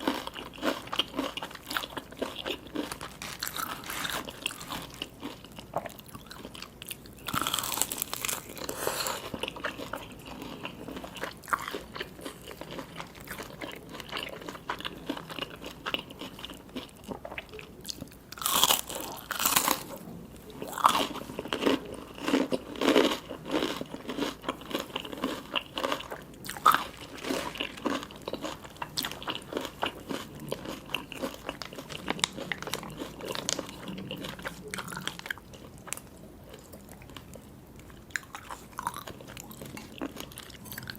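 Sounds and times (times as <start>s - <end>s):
person chewing crunchy food: 0.0s - 40.9s.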